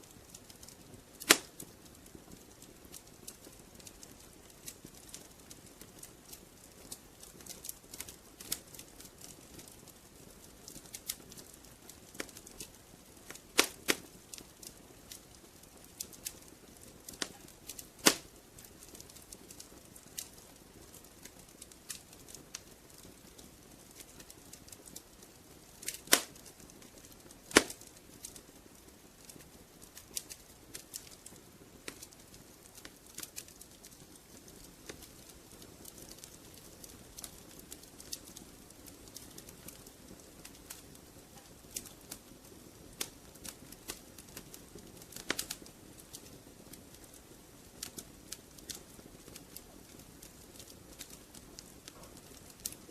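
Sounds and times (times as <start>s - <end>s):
wood fire crackling: 0.0s - 52.9s
sharp loud fire pops: 18.0s - 18.3s, 26.1s - 26.3s, 27.5s - 27.8s.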